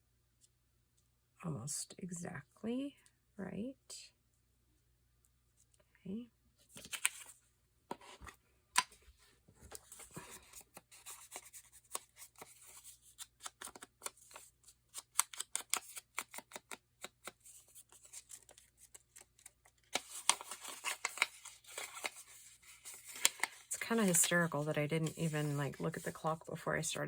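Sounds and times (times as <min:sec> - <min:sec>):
paper rustling: 0:06.7 - 0:07.4, 0:09.6 - 0:27.0
paper clicks and taps: 0:15.0 - 0:17.4.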